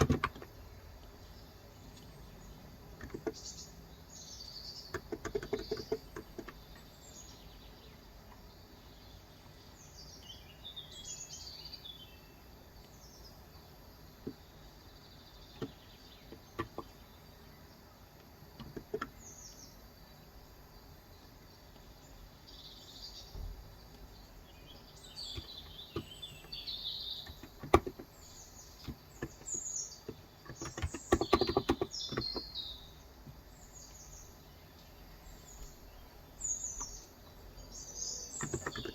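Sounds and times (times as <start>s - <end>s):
birds chirping and singing: 0.0s - 38.9s
keyboard typing: 30.5s - 32.5s.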